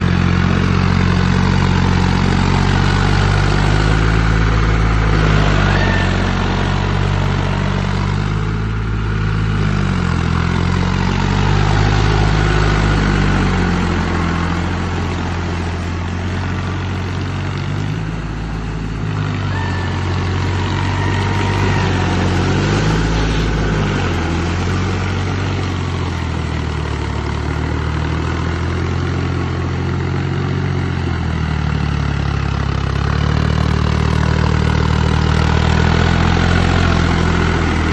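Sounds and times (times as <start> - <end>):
tractor engine running under load: 0.0 - 37.9.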